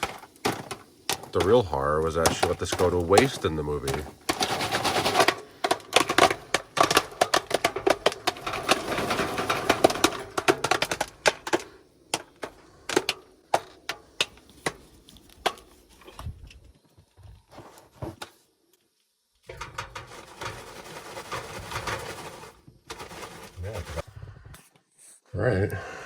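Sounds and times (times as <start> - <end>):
popcorn popping: 0.0 - 15.8, 19.5 - 24.0.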